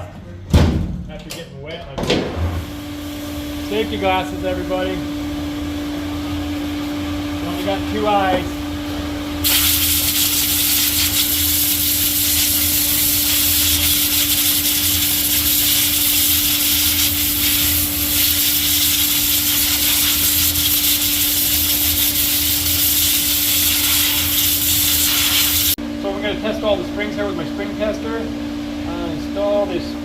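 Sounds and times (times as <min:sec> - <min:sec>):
low machine hum: 0:00.0 - 0:24.7, 0:25.7 - 0:30.0
compressed air blowgun hissing: 0:09.4 - 0:25.8.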